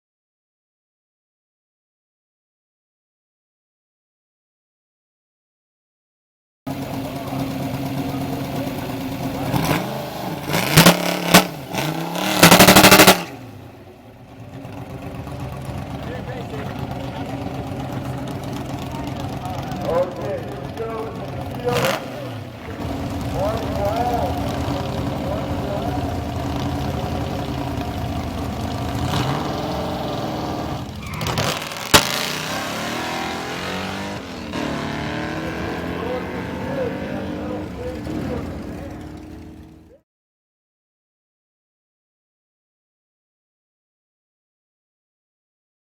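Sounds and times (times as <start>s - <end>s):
racing car engine idling and revving: 6.7s - 40.0s
sharp crack: 31.2s - 32.7s.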